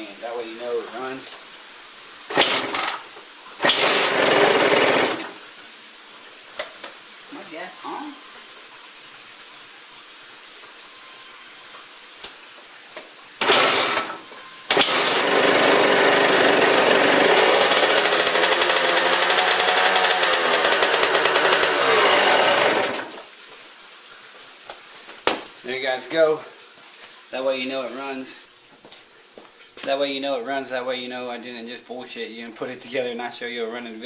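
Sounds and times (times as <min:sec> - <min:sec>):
two-stroke engine running: 0:03.6 - 0:05.4, 0:13.4 - 0:23.2.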